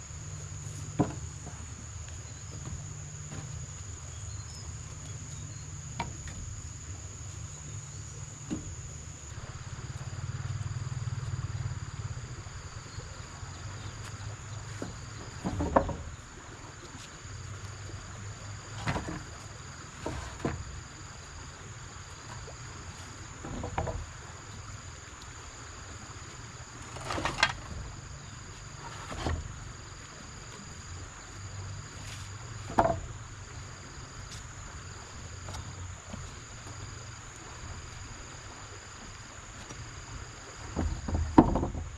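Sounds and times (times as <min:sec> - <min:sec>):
insect calling in short runs: 0:00.0 - 0:41.1
insects buzzing: 0:00.0 - 0:41.9
knocks or thuds: 0:40.8 - 0:41.9.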